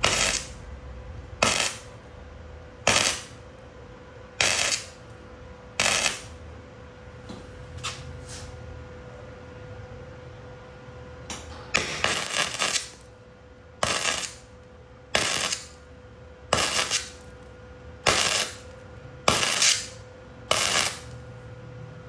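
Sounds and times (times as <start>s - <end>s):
sharp metallic bursts: 0.0s - 0.6s, 1.4s - 2.0s, 2.8s - 3.4s, 4.4s - 5.0s, 5.8s - 6.3s, 11.8s - 13.0s, 13.8s - 14.4s, 15.2s - 15.8s, 16.5s - 17.2s, 18.1s - 18.7s, 19.3s - 21.2s.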